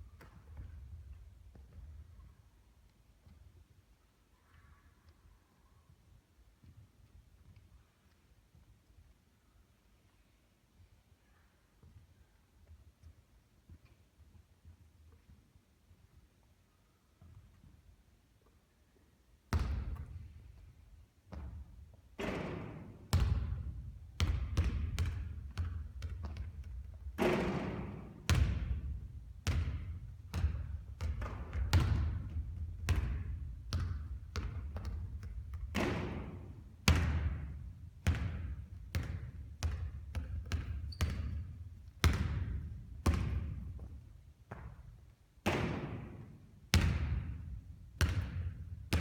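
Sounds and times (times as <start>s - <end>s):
basketball bouncing on hard court: 19.5s - 20.7s, 21.3s - 49.0s.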